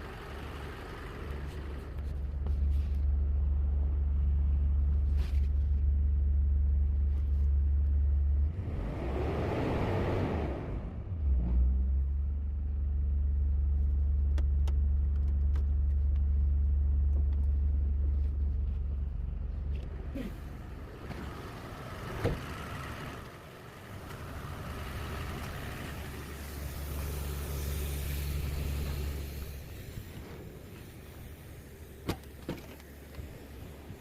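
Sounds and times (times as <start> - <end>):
vehicle engine rumbling: 0.0 - 34.0.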